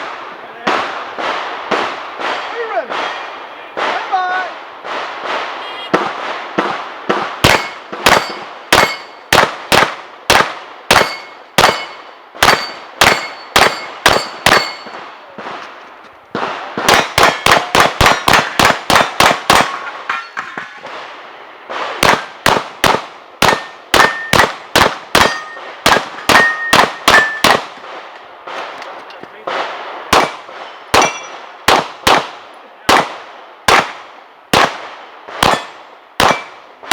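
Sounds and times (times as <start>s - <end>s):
rapid pistol shots: 4.9s - 14.9s, 16.4s - 19.8s, 21.7s - 28.8s, 29.5s - 36.9s
steel targets ringing: 7.5s - 9.3s, 10.9s - 15.1s, 16.9s - 20.9s, 23.4s - 24.6s, 25.2s - 27.6s, 30.2s - 31.4s.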